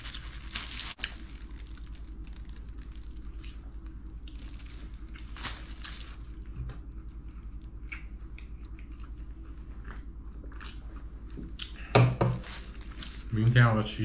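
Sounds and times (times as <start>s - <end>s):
chewing and biting crunches: 0.0s - 11.9s
low hum: 0.0s - 14.0s.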